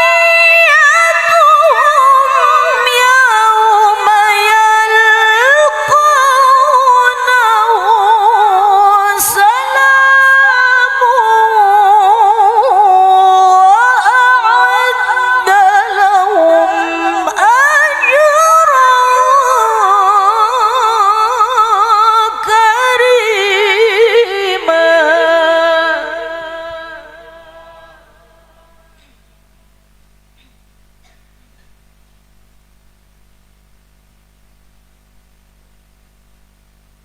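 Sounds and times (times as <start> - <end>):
woman chanting melodically: 0.0 - 29.4.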